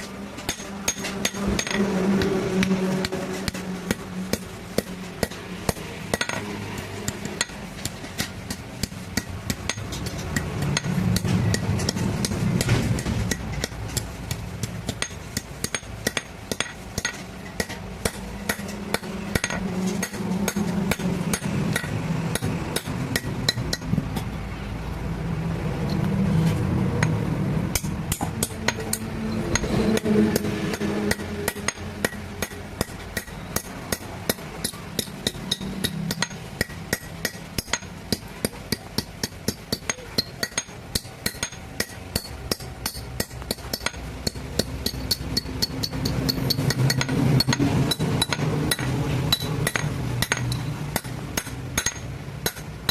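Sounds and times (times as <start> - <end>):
hammer striking metal on anvil: 0.0 - 24.4, 27.0 - 52.9.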